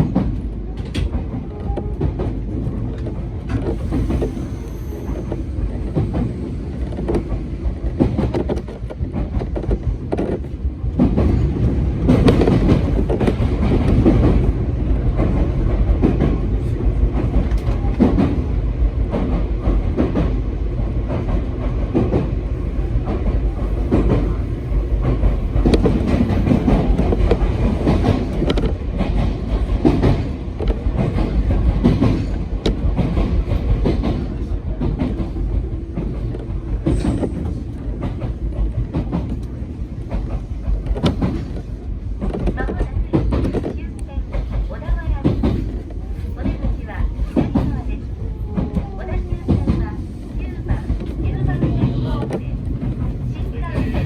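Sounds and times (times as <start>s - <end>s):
train running on track: 0.0s - 54.0s
wheels clacking over rail joints: 21.1s - 54.0s.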